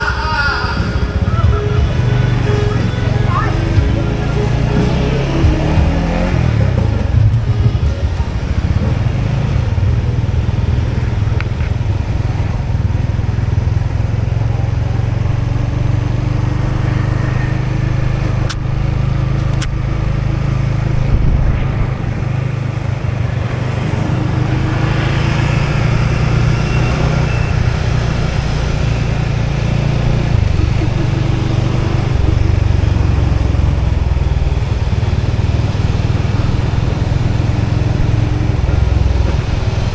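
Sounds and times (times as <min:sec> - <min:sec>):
road noise: 0:00.0 - 0:39.9
motorbike engine running: 0:00.8 - 0:39.9
sharp clicks: 0:18.2 - 0:20.1.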